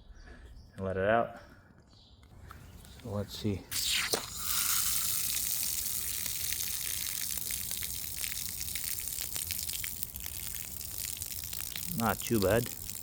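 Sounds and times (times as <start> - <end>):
small crackles: 2.2 - 13.0
water rushing from drain hose: 3.7 - 13.0.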